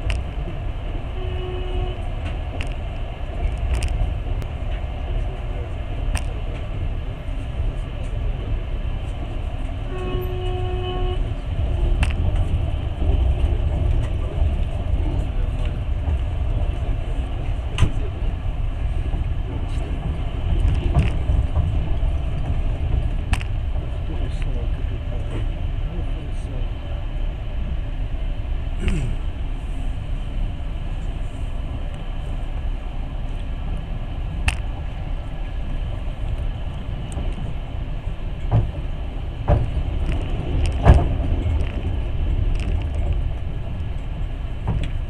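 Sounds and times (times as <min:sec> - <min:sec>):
train rumbling: 0:00.0 - 0:45.0
train horn: 0:01.1 - 0:02.2, 0:09.8 - 0:11.4.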